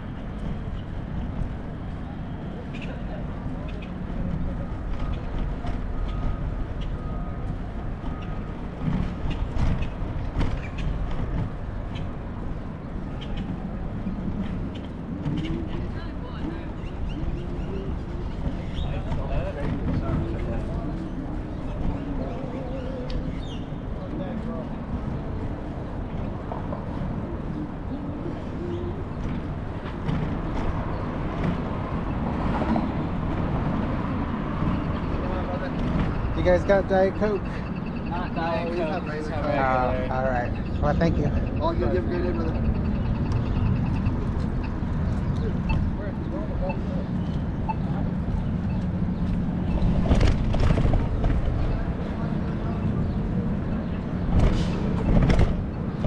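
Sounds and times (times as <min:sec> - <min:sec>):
street noise low rumble: 0:00.0 - 0:56.0
vehicle traffic: 0:00.0 - 0:56.0.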